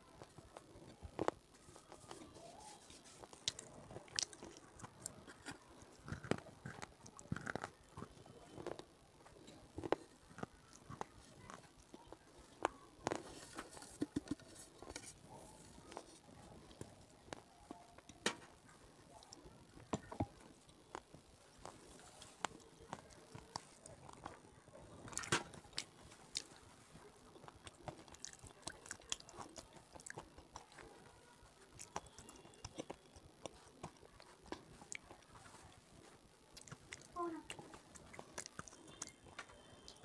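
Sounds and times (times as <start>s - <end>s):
soft chewing mouth sounds: 0.0s - 40.0s
person crunching something brittle: 25.0s - 26.6s.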